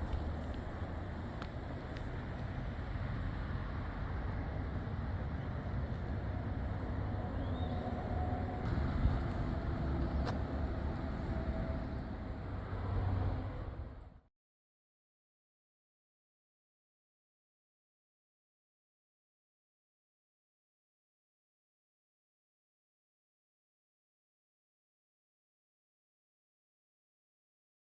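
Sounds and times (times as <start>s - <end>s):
moving vehicle road noise: 0.0s - 14.3s.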